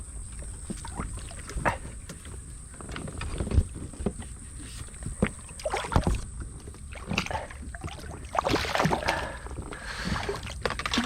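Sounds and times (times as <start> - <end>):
water splashes: 0.3 - 2.0, 4.8 - 11.0.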